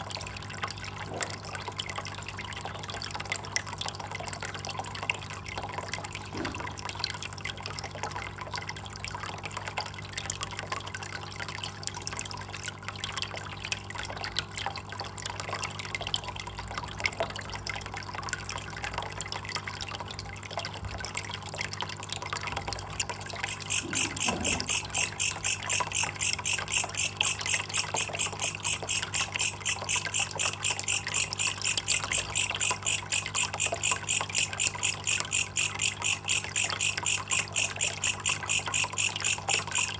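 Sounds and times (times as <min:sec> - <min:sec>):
water trickling and dripping: 0:00.0 - 0:39.9
katydid pulsing chirp: 0:23.3 - 0:39.9.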